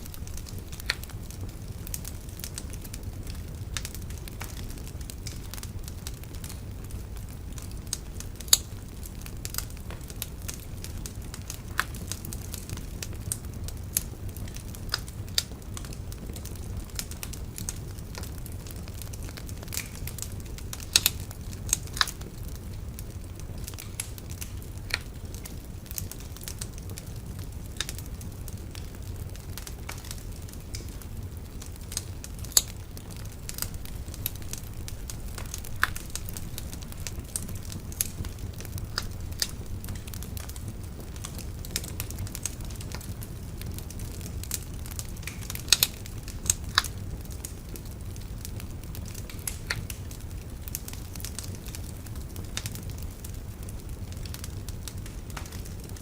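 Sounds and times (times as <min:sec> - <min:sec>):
bonfire crackling and popping: 0:00.0 - 0:56.0.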